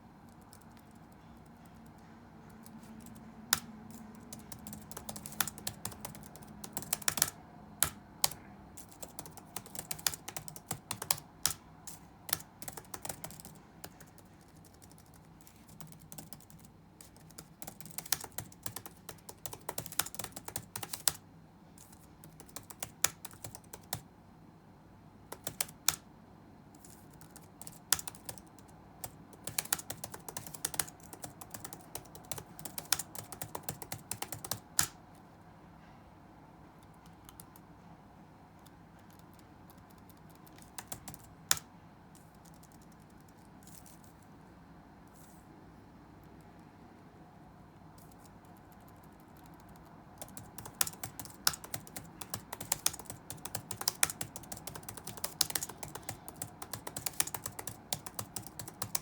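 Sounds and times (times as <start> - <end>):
faint background noise: 0.0 - 59.0
typing on computer keyboard: 0.3 - 21.2, 21.8 - 24.1, 25.3 - 26.0, 26.7 - 35.0, 36.8 - 37.9, 38.6 - 44.0, 48.0 - 59.0.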